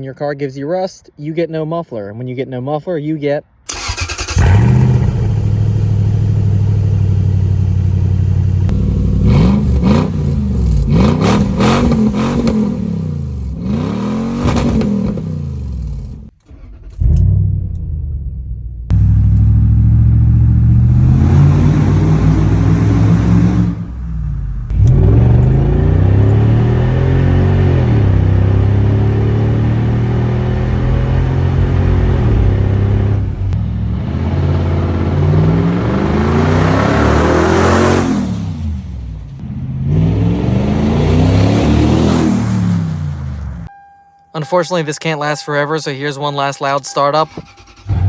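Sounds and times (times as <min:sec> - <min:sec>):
loud engine revving: 0:03.7 - 0:16.3, 0:18.9 - 0:43.7.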